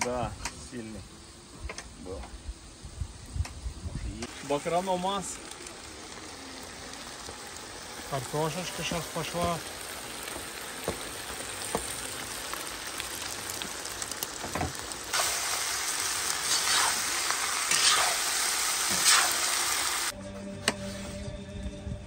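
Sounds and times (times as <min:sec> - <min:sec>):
meat and potatoes sizzling in oil: 0:00.0 - 0:20.2.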